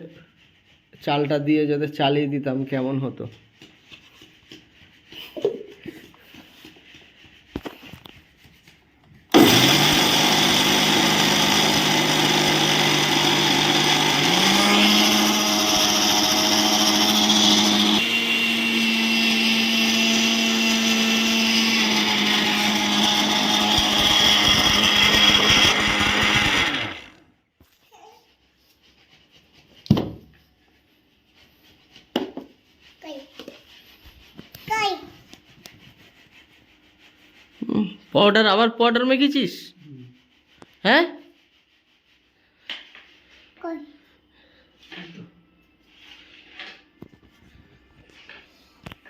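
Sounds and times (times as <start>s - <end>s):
mixer grinder motor running: 9.3s - 27.3s.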